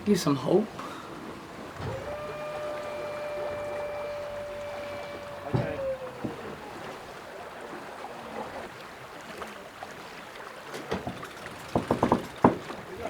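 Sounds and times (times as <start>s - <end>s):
water rushing past hull: 0.0s - 13.0s
sharp knocks on board: 11.7s - 12.6s.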